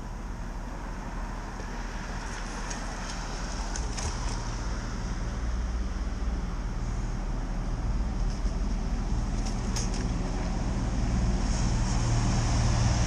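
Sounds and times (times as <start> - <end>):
low traffic rumble: 0.0 - 13.0
wet road traffic hiss: 0.0 - 13.0.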